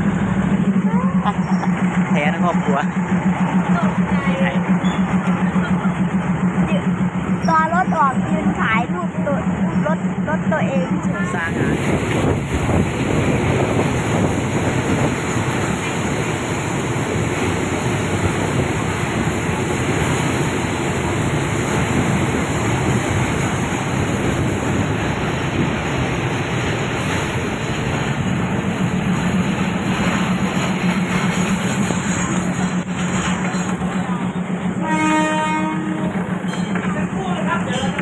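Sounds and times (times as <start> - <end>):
train running along track: 0.0 - 38.0.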